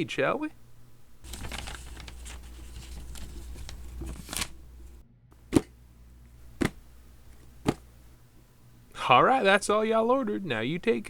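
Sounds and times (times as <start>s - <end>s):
paper rustling and crinkling: 1.2s - 5.0s.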